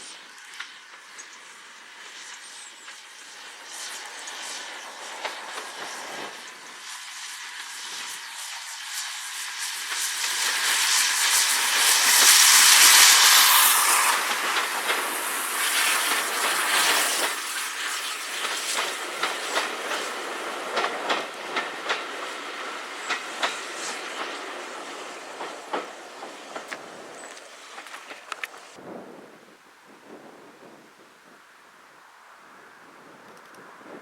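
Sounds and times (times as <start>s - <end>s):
passing train rushing hiss: 0.0s - 34.0s
wheels clicking over rail joints: 2.8s - 6.7s, 9.9s - 28.8s.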